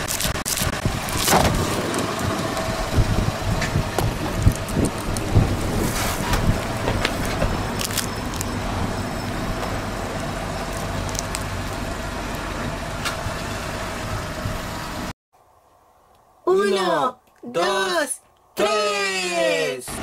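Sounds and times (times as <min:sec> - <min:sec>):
foil wrapper crackling: 0:00.0 - 0:01.8, 0:06.5 - 0:08.5, 0:10.7 - 0:11.7
car engine idling: 0:00.8 - 0:05.8, 0:06.4 - 0:15.1.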